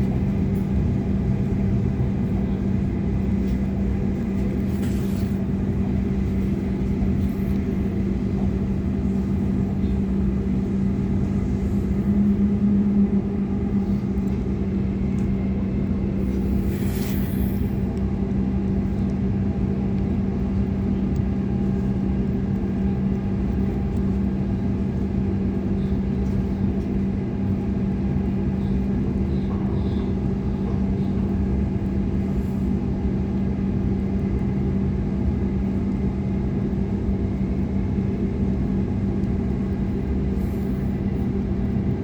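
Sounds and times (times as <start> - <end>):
train wheels rumbling on track: 0.0 - 33.6
constant low hum: 0.0 - 42.0.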